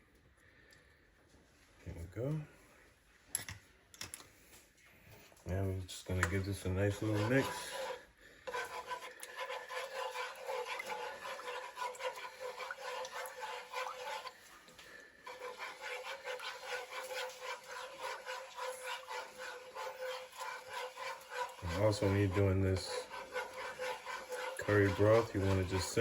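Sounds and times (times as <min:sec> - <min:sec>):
utensil scraping a pan: 0:05.5 - 0:26.0.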